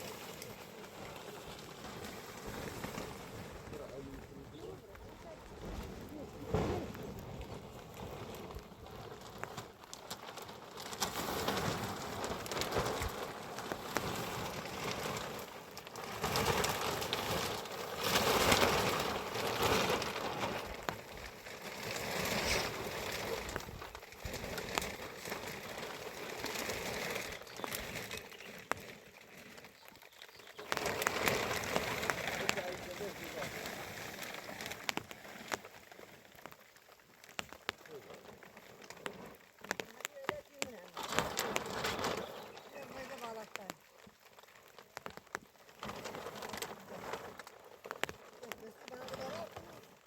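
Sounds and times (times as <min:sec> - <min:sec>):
rain pattering: 0:00.0 - 0:50.0.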